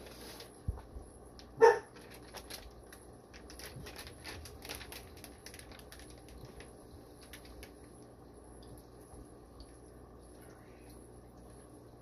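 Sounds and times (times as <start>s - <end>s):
plastic bags crinkling: 1.8s - 7.9s.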